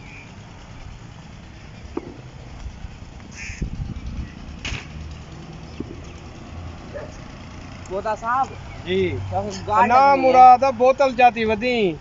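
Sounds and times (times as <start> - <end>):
bird calls: 0.0 - 2.2, 3.2 - 4.6, 5.6 - 7.3, 8.4 - 9.7
low rumble on microphone: 1.7 - 5.0.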